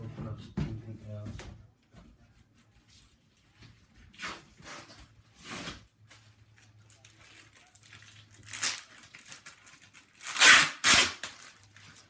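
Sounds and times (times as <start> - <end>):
packaging crinkling: 6.1 - 12.0.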